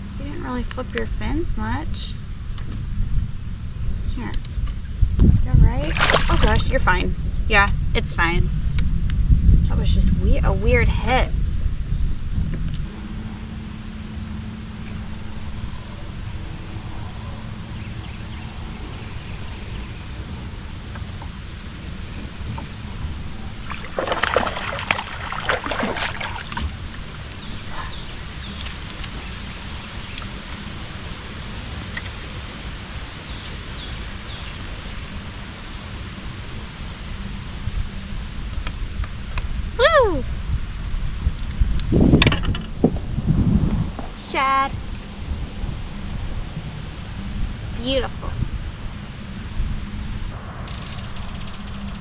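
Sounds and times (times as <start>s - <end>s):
wind rumble on microphone: 0.0s - 52.0s
water splashing around a kayak: 5.7s - 7.0s, 17.1s - 36.2s
water dripping: 17.8s - 30.8s, 31.4s - 35.4s.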